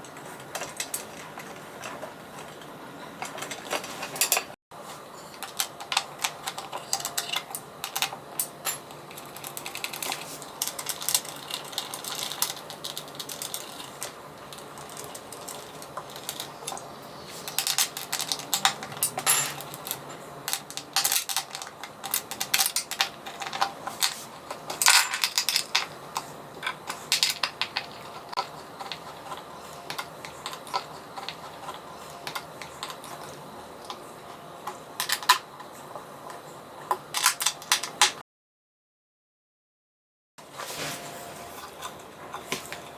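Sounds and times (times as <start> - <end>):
small hard objects clattering: 9.1 - 25.9.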